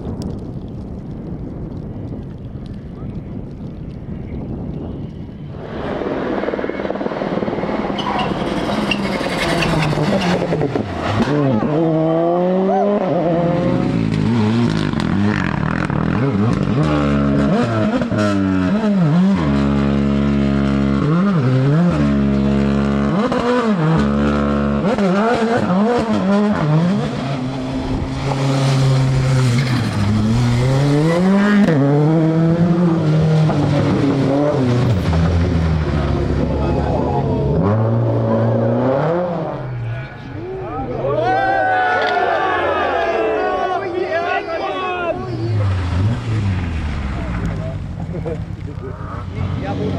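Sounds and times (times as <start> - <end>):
rally car engine revving: 5.8 - 41.0, 45.2 - 49.9.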